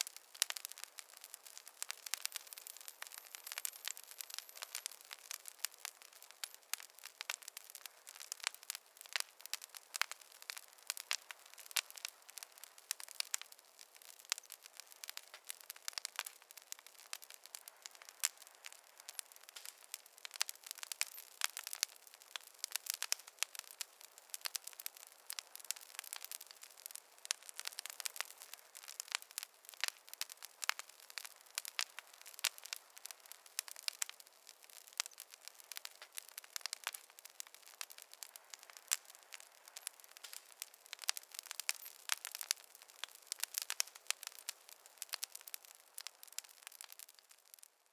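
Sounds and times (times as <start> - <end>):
campfire crackling: 0.0 - 47.9.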